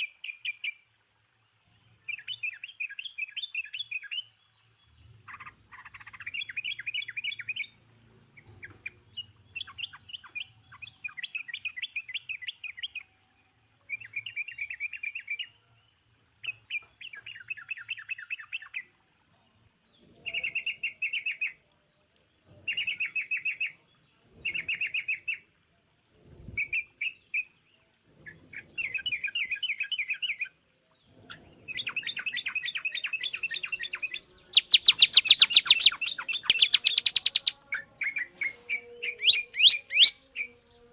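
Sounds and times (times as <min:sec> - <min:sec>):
small bird trilling song: 0:05.2 - 0:07.8, 0:31.2 - 0:40.9.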